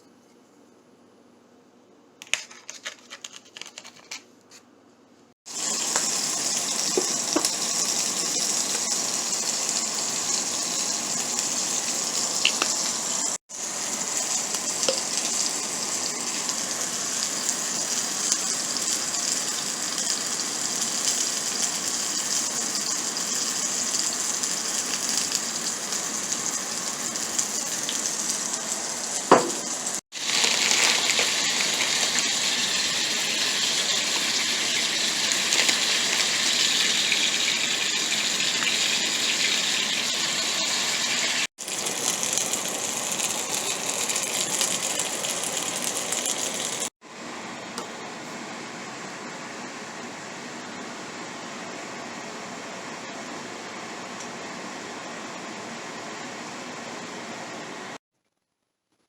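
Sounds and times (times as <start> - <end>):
meat sizzling in a pan: 5.5 - 46.9.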